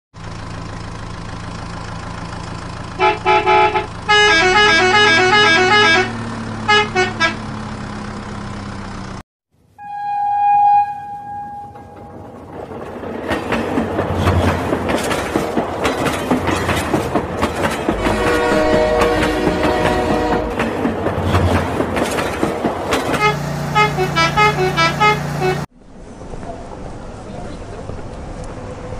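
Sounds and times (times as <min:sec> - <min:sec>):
electronic toy horn and beeps: 0:03.0 - 0:06.1, 0:06.7 - 0:07.4, 0:09.8 - 0:11.9.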